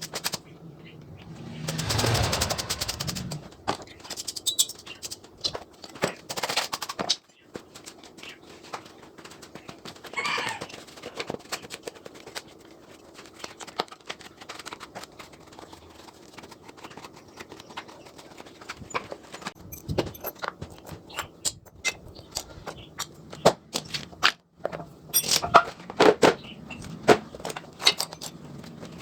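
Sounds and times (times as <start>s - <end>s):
scraping: 0.2s - 4.0s
metal tools clicking and knocking: 19.6s - 22.5s, 25.1s - 25.7s, 27.4s - 28.5s.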